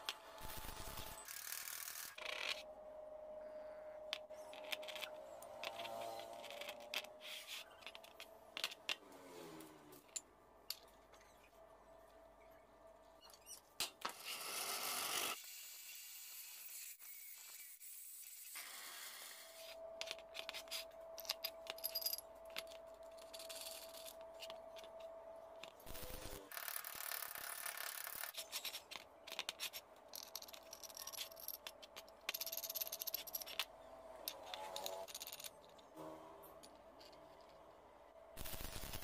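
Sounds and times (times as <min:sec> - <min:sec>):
metal parts clinking on wood: 0:20.0 - 0:25.8, 0:26.5 - 0:35.9.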